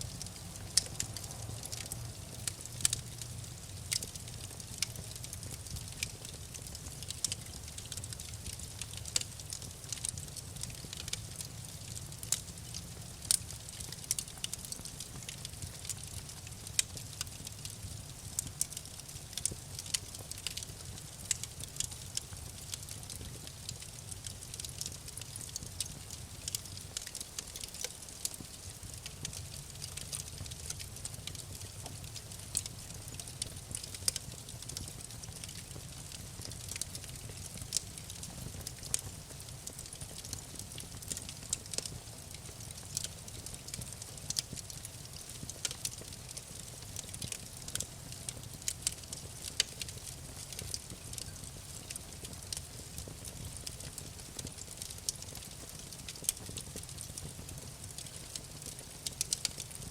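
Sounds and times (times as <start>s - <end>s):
wood fire crackling and snapping: 0.0s - 59.9s.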